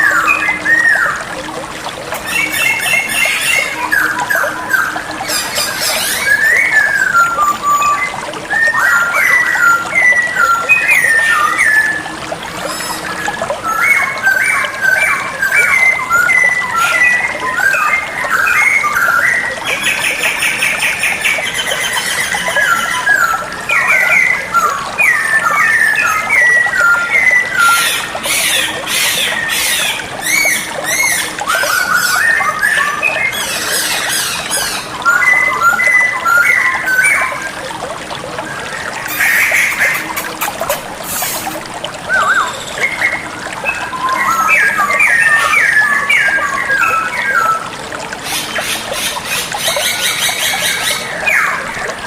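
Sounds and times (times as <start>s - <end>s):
bird whistled song: 2.2s - 12.0s, 12.7s - 37.5s.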